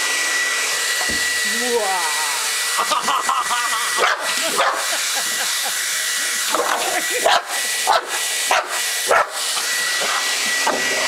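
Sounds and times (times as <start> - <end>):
blow dryer running: 0.0 - 11.0
dog barking: 4.0 - 4.8, 7.2 - 9.4.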